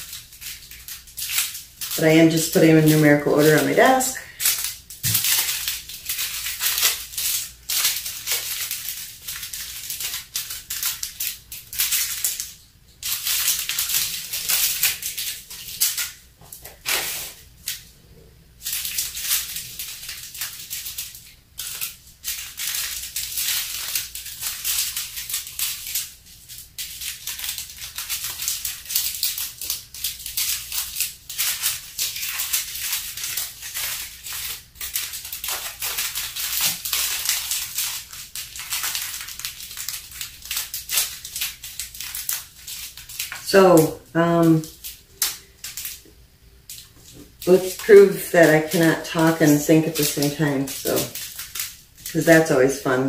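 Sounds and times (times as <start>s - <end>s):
tiny beads rattling in bags: 0.0s - 17.9s, 18.6s - 53.0s
plastic bags crinkling: 0.0s - 53.0s.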